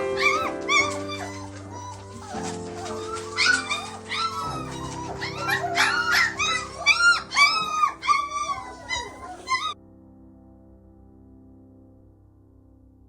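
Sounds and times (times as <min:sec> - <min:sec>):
puppies whining and yelping: 0:00.0 - 0:09.8
music: 0:00.0 - 0:13.0.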